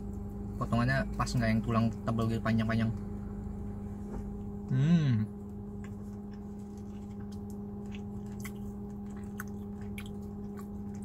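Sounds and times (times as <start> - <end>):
steady low hum: 0.0 - 11.0
man humming mmm: 4.7 - 5.4
chewing: 5.7 - 11.0.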